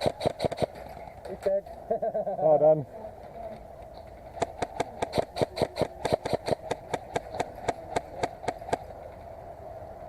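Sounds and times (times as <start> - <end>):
airsoft gun shots: 0.0 - 0.8, 4.4 - 8.8
steady hum: 0.0 - 10.0.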